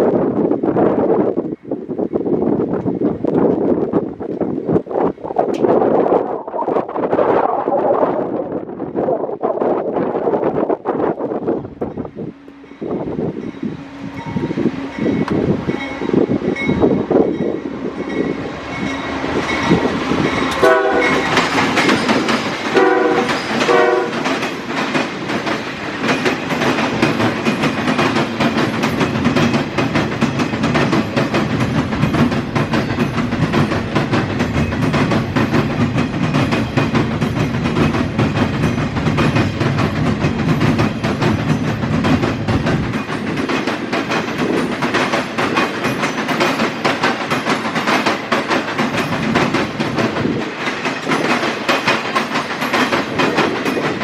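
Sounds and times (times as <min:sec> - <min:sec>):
diesel locomotive passing: 0:00.0 - 0:54.0
train wheels clattering over rail joints: 0:13.2 - 0:54.0
train horn blasts: 0:20.5 - 0:21.3, 0:22.7 - 0:24.2.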